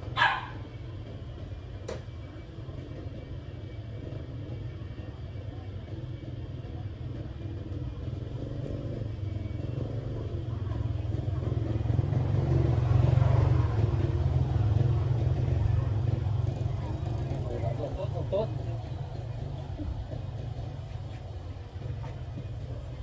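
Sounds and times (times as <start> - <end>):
small engine running: 7.3 - 23.0.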